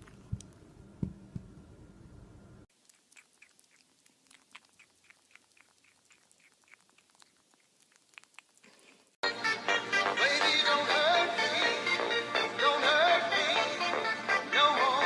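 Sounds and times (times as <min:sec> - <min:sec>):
animal chewing: 0:02.7 - 0:09.2
loud music: 0:09.2 - 0:15.0.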